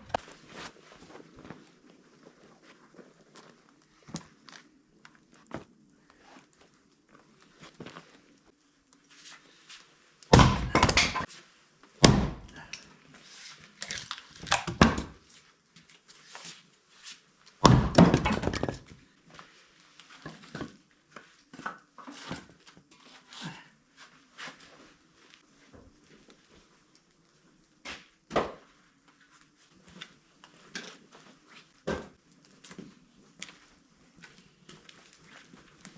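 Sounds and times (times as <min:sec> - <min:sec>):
heavy thunks of firewood: 0:10.3 - 0:11.3, 0:12.0 - 0:12.7, 0:17.6 - 0:18.9.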